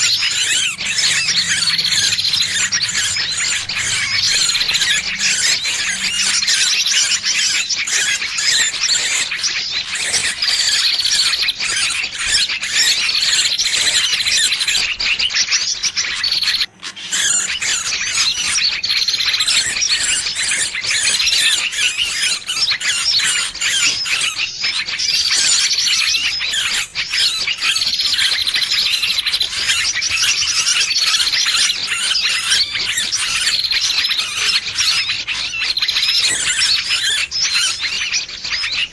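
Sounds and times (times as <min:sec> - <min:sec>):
high-pitched bird squealing chirps: 0:00.0 - 0:38.9.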